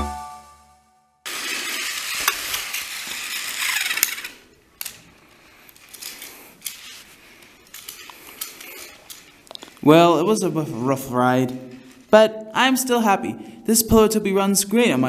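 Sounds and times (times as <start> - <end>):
toy train rattling on track: 1.3 - 9.4
toy train clicks: 1.4 - 5.1, 7.7 - 9.3.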